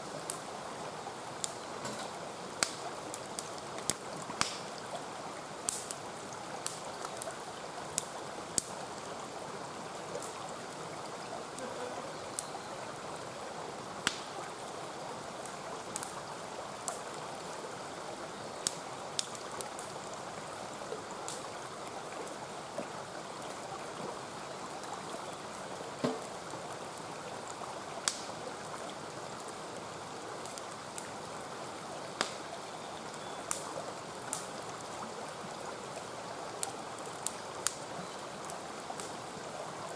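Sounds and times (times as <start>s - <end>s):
mountain stream flowing: 0.0s - 39.9s
campfire crackling and popping: 0.2s - 0.5s, 1.3s - 9.1s, 10.1s - 12.8s, 14.0s - 14.6s, 15.3s - 17.5s, 18.6s - 20.0s, 21.1s - 21.6s, 26.0s - 31.2s, 32.1s - 32.6s, 33.4s - 35.0s, 35.9s - 39.3s.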